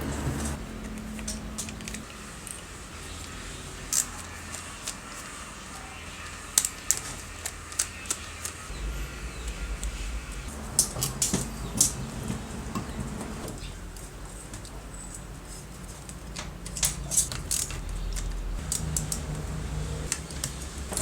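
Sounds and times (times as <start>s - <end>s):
low steady hum: 8.6s - 14.1s.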